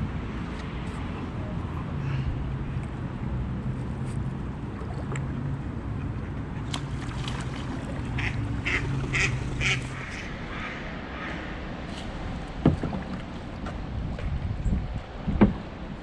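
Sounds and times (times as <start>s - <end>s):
ducks quacking: 8.1s - 11.6s.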